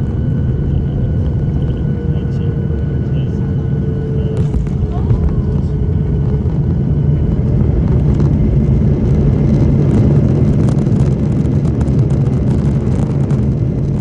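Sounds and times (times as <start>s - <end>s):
aircraft engines rumbling: 0.0s - 14.0s.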